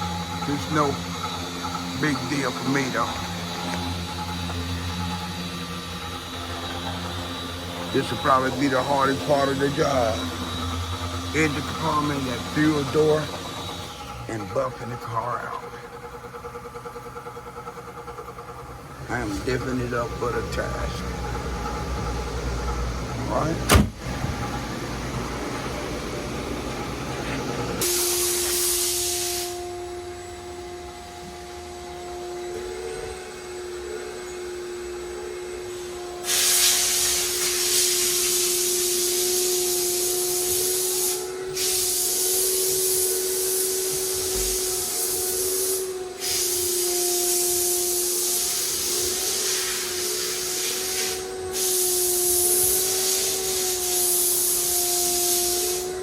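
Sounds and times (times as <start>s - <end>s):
motor humming: 0.0s - 56.0s
hissing air jet: 27.1s - 29.8s, 36.2s - 56.0s.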